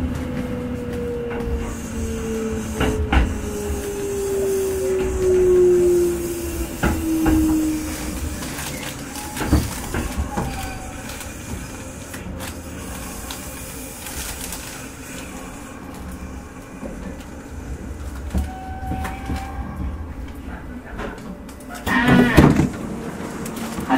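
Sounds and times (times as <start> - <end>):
electric train motor whine: 0.0 - 23.9
train rumble and hiss: 0.0 - 23.9.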